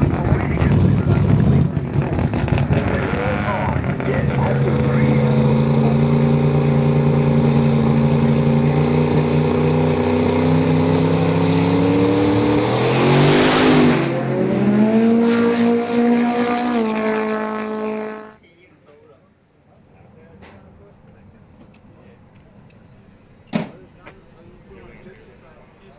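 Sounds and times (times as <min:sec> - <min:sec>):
drag car engine running: 0:00.0 - 0:18.4.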